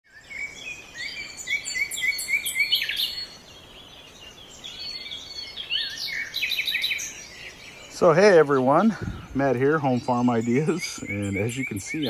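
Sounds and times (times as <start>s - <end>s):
birds singing: 0.0s - 12.0s.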